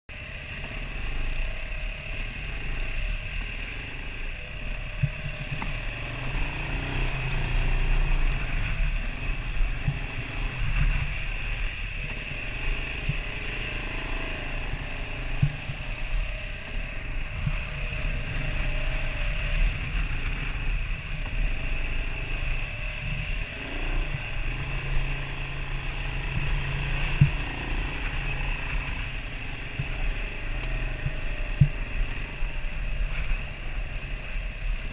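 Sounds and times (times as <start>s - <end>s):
off-road vehicle engine: 0.1s - 34.9s.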